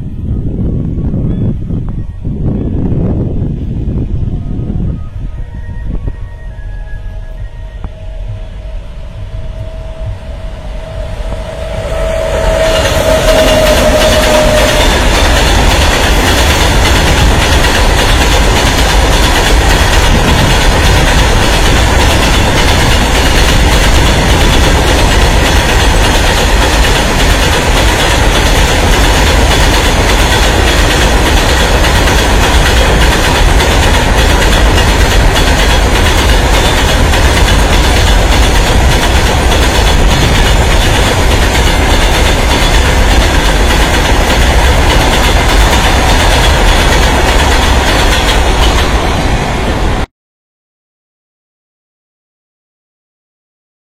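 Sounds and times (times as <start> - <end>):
loud low rumble: 7.1 - 16.2.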